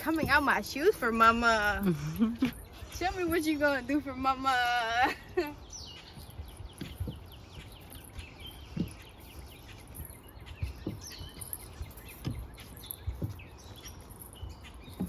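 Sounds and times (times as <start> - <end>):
dull low thumps: 0.0 - 4.6
faint outdoor hiss: 0.0 - 15.0
small birds chirping: 0.0 - 15.0.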